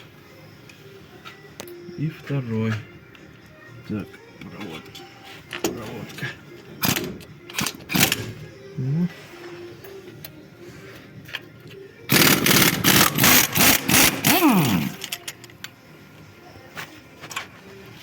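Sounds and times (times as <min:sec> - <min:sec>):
power wrench chattering: 0:12.1 - 0:15.5.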